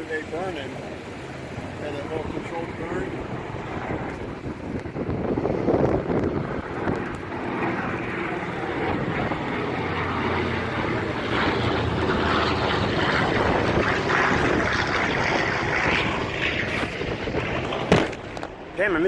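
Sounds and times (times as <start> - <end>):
propeller aircraft flying past: 0.0 - 19.0.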